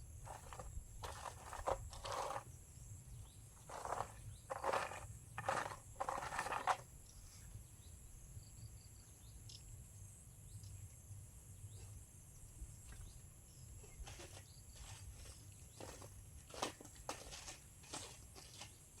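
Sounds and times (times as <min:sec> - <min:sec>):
rustling: 0:00.3 - 0:02.4.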